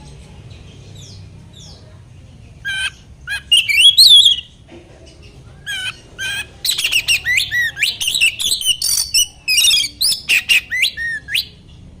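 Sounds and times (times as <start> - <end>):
songbird whistling and chattering: 2.6 - 4.6, 5.6 - 11.6.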